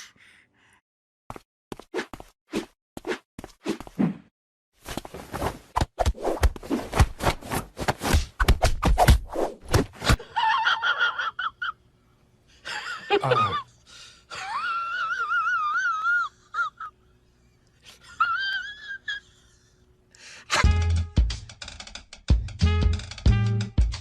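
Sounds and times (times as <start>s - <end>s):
rapid scuffling: 4.8s - 10.1s.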